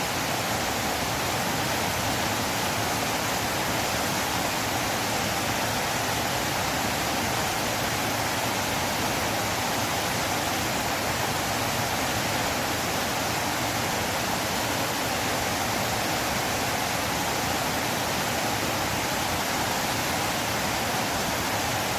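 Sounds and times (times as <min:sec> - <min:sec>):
river water rushing: 0:00.0 - 0:21.9.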